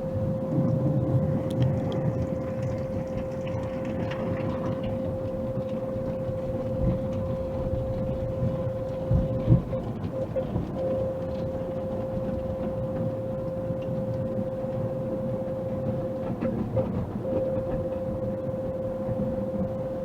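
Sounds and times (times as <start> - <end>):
car wash machinery running: 0.0 - 20.0.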